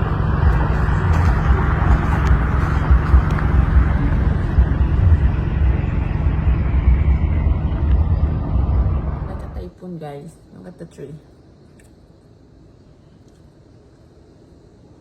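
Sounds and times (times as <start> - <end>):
storm wind buffeting microphone: 0.0 - 9.8.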